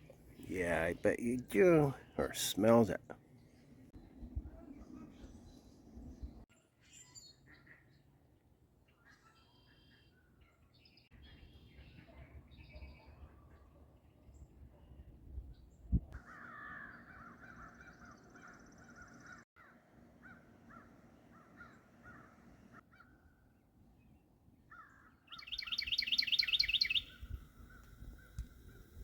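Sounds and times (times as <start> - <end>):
wild birds calling: 16.2 - 23.2, 24.7 - 29.0.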